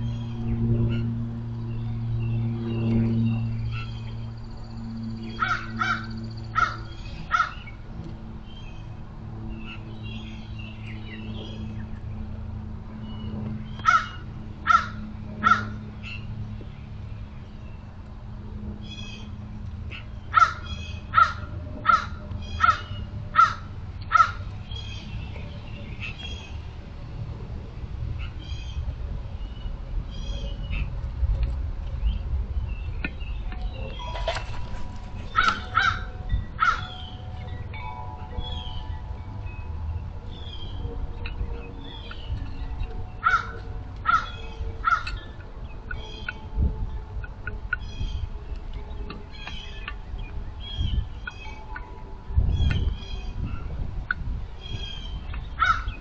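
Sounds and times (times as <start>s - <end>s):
steady low hum: 0.0s - 56.0s
crow cawing: 5.4s - 7.6s, 13.8s - 15.8s, 20.4s - 24.4s, 35.3s - 36.9s, 43.2s - 45.2s
small birds chirping: 47.2s - 51.8s.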